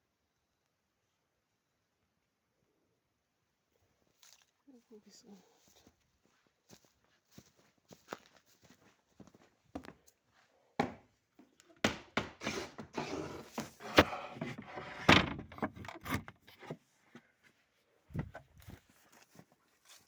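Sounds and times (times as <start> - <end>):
objects knocking and thudding: 11.8 - 16.8, 18.1 - 18.8.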